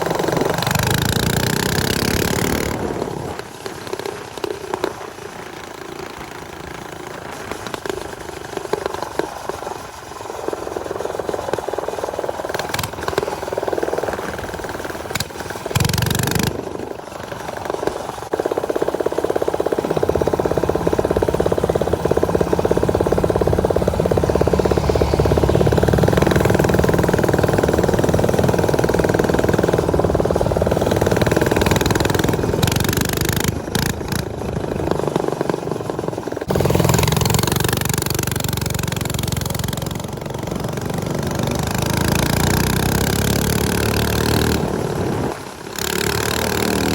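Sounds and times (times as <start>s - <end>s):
off-road motorcycle engines: 0.0s - 46.9s.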